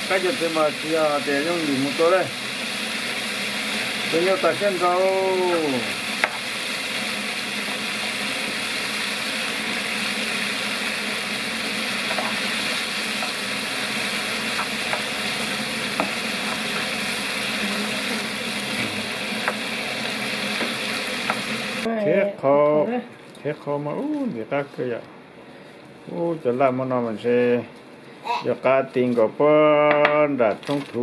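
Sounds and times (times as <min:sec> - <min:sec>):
food sizzling in a pan: 0:00.0 - 0:22.2.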